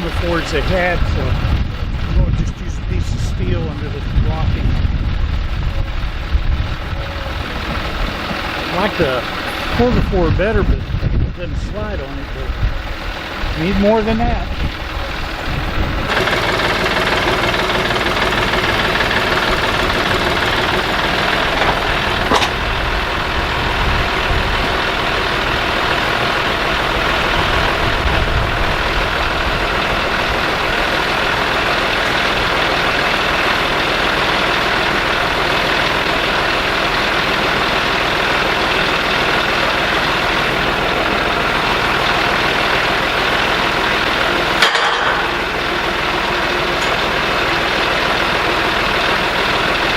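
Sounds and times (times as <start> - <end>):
vehicle engine running: 0.0 - 49.9
sharp metallic knock: 44.6 - 45.4.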